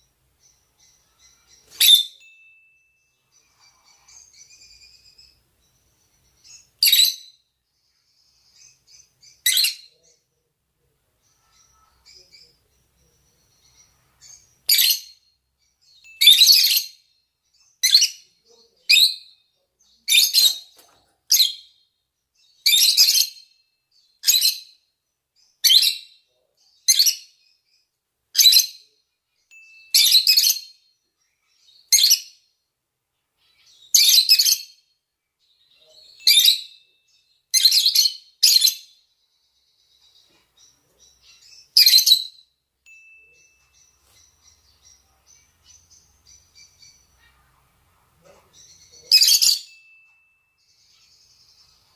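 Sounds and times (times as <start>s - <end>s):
lovebirds shrill calls: 0.0s - 10.1s, 11.2s - 19.4s, 20.0s - 24.8s, 31.4s - 32.5s, 33.4s - 34.8s, 35.6s - 39.0s, 39.6s - 47.7s, 48.4s - 51.9s.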